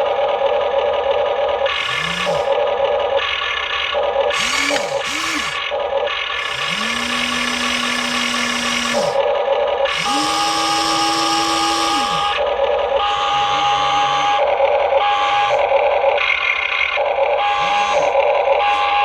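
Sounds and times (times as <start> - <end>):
small electric motors whining: 1.6 - 12.6, 15.1 - 19.0
steady hum: 1.8 - 2.6, 6.4 - 9.2, 9.9 - 12.6.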